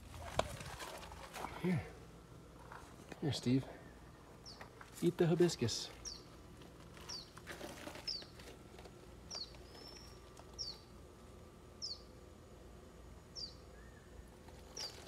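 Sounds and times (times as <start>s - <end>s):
small bird chirping: 3.8s - 4.7s, 6.0s - 6.3s, 7.0s - 8.4s, 9.3s - 10.9s, 11.8s - 12.1s, 13.4s - 15.0s.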